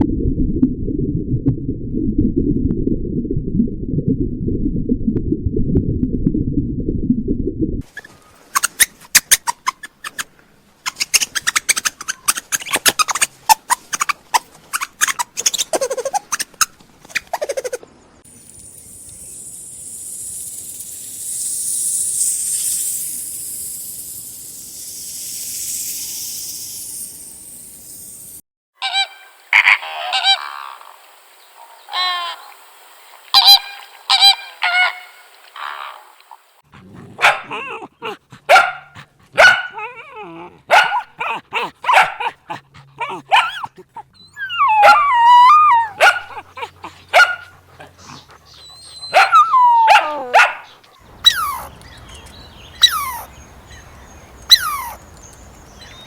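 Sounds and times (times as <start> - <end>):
high hiss: 18.3 - 28.4
waterfowl calling: 28.8 - 32.6, 33.3 - 36.4, 45.9 - 55.2.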